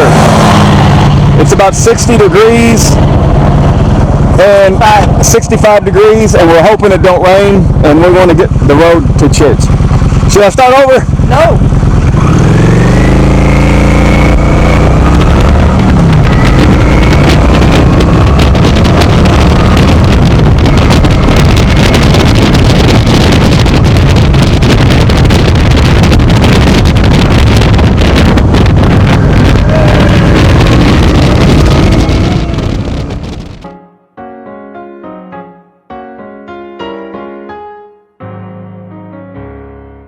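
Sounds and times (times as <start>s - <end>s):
motorcycle engine pulling away: 0.0s - 2.1s, 11.1s - 33.6s
wind noise on microphone: 0.0s - 33.7s.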